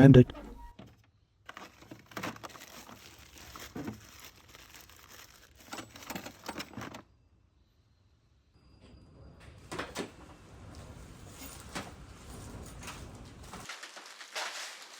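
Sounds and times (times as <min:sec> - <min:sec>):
rustling: 0:01.5 - 0:07.0, 0:12.2 - 0:14.9
metal parts clicking and knocking: 0:05.5 - 0:07.0.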